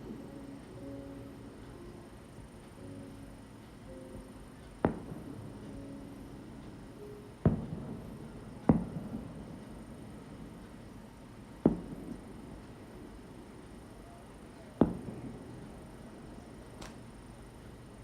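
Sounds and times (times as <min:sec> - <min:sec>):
fireworks shells bursting: 0:11.6 - 0:12.8, 0:14.8 - 0:15.6.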